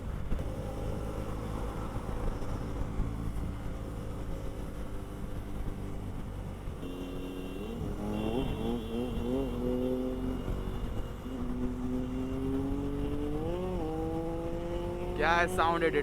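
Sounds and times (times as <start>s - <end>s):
road and wind rumble: 0.0s - 16.0s
motorcycle engine revving: 6.8s - 16.0s.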